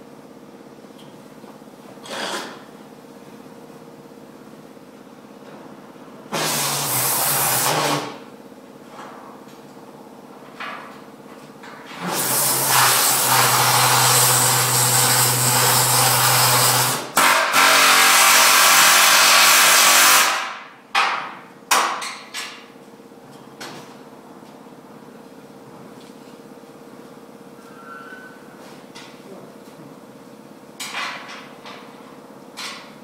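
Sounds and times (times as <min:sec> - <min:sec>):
power tool harsh rushing noise: 0:06.3 - 0:08.2, 0:11.9 - 0:20.6.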